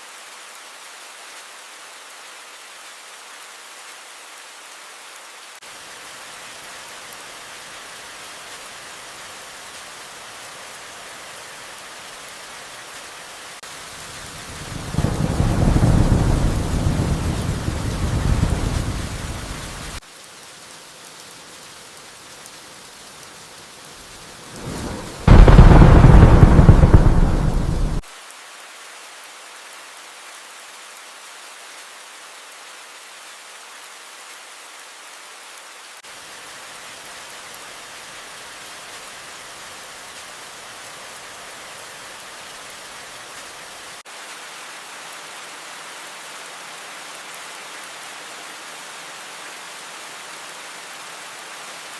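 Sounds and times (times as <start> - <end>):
steady rain: 0.0 - 51.9
thunder rumbling: 14.6 - 20.0, 24.5 - 28.0.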